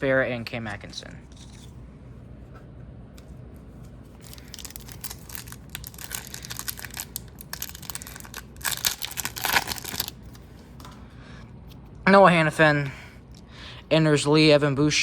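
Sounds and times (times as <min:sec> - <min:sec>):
card pack wrapper crinkling and tearing: 0:04.2 - 0:10.4.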